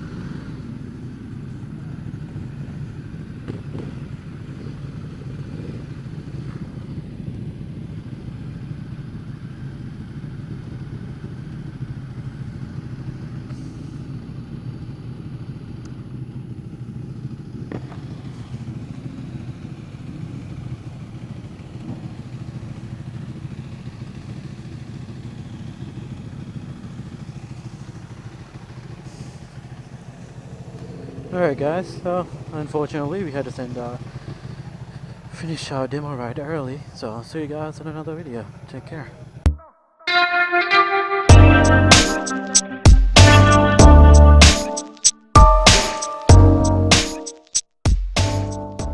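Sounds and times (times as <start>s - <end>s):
motorcycle engine running: 0.0s - 35.5s, 41.3s - 46.9s
sharp click: 44.4s - 48.5s.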